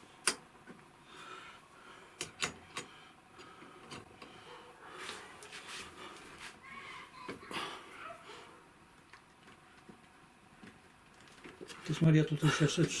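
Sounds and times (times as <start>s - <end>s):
rustling and scraping: 4.9s - 7.1s.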